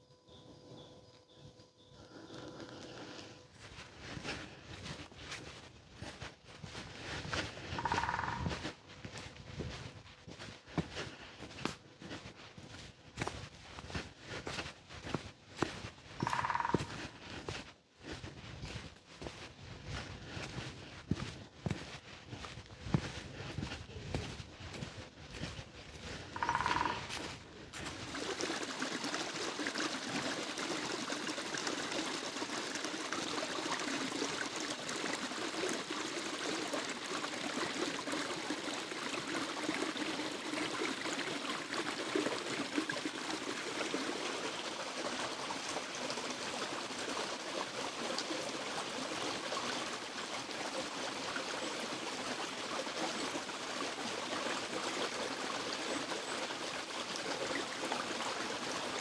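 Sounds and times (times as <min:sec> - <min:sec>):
stream flowing over rocks: 0:07.3 - 0:08.5, 0:26.3 - 0:59.0.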